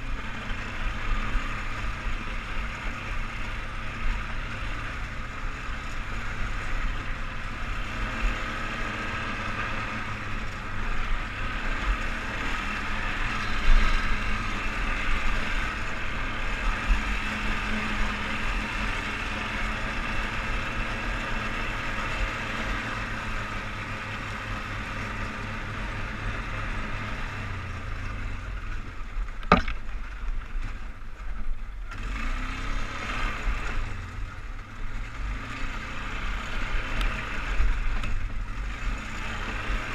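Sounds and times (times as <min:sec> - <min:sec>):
atv engine running: 0:00.0 - 0:39.9
sharp knock: 0:29.4 - 0:29.8.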